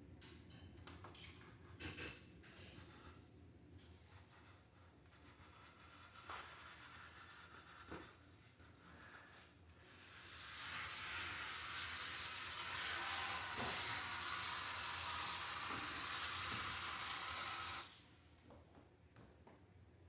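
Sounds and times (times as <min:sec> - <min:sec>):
hissing spray: 0:10.3 - 0:18.1.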